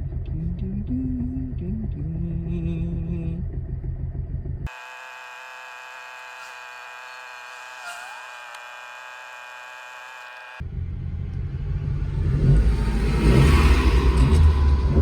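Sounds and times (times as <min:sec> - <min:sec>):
car engine low rumble: 0:00.0 - 0:04.7, 0:10.6 - 0:15.0
steady hum of held tones: 0:00.0 - 0:07.8.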